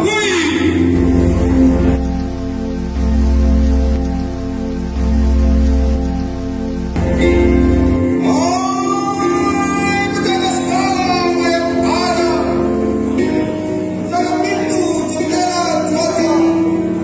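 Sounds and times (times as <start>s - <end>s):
sustained instrumental accompaniment: 1.0s - 8.3s.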